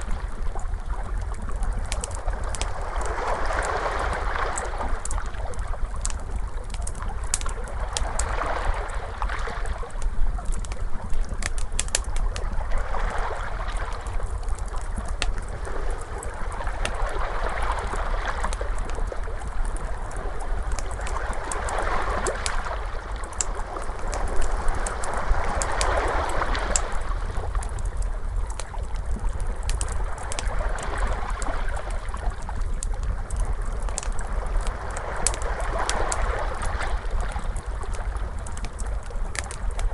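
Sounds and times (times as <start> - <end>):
wood fire crackling: 0.0 - 39.9
ocean waves washing: 11.8 - 28.9.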